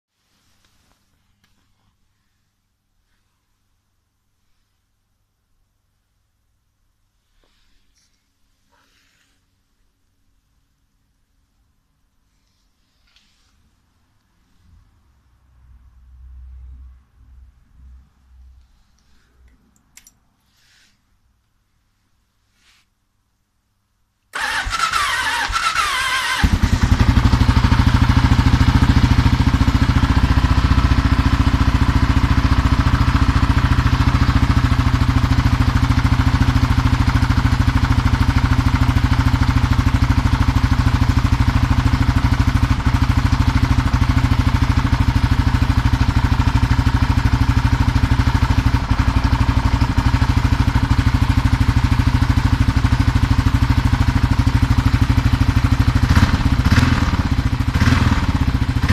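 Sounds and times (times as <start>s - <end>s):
engine starter cranking: 24.4s - 26.9s.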